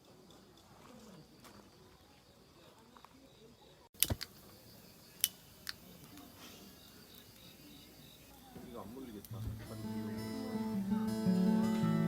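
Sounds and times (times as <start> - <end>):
sharp clicks: 4.0 - 4.5, 5.2 - 6.3.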